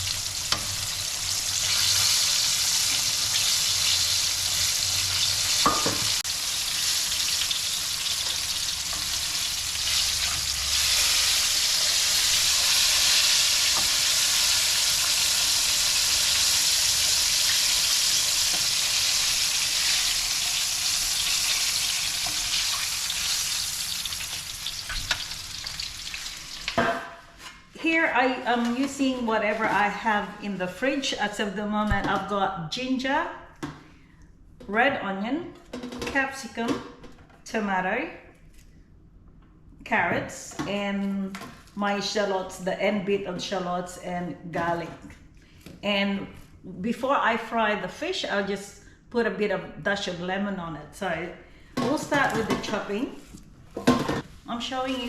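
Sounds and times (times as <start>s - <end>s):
fish deep-frying in oil: 0.0s - 26.8s.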